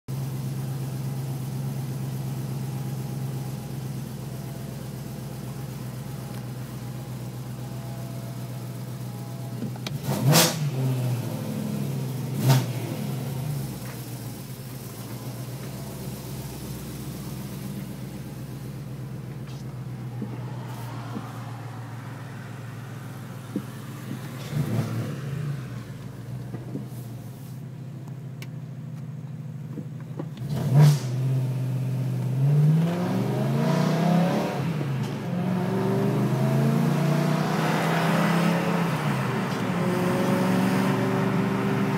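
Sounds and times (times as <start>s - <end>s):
car engine idling: 0.1s - 30.5s.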